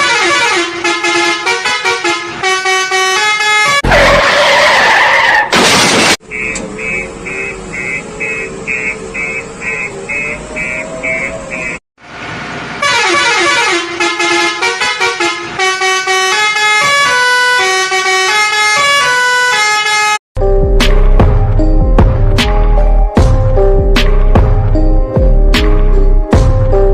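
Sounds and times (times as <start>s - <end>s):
rapid even beeping: 6.3s - 11.8s.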